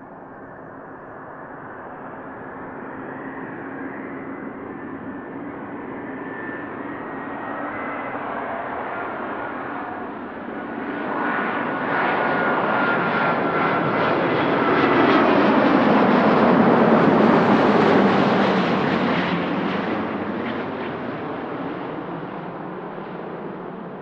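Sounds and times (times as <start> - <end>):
jet airliner passing: 0.0 - 24.0.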